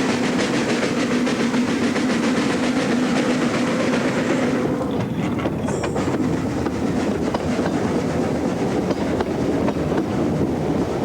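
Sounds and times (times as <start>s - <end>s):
train rumbling: 0.0s - 11.0s
wheels clicking over track: 4.7s - 10.4s.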